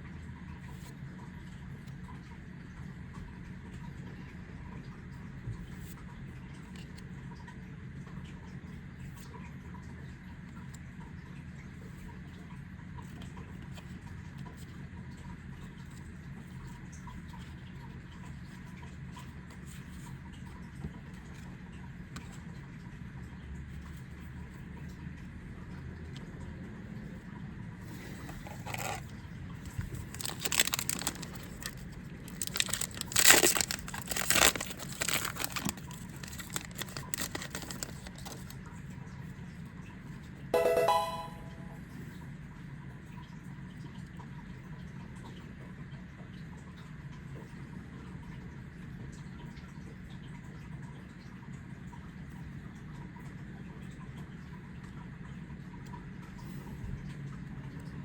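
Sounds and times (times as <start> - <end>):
foil pack tearing and crinkling: 28.4 - 29.0, 29.7 - 38.5.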